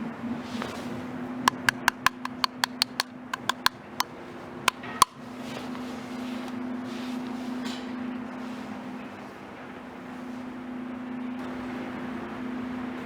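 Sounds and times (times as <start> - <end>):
sharp ringing clicks: 1.5 - 3.8.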